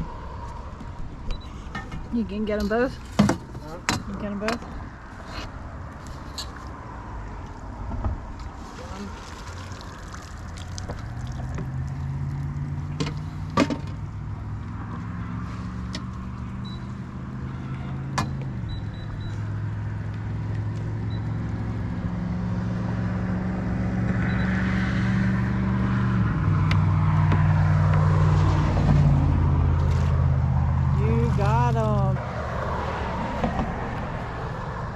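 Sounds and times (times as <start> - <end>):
boat motor running: 30.8 - 32.2.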